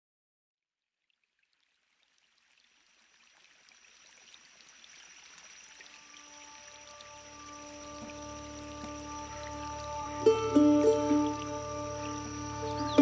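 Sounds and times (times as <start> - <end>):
water trickling and dripping: 0.9 - 13.0
soft sustained music notes: 5.9 - 13.0
thin high steady tone: 6.5 - 13.0.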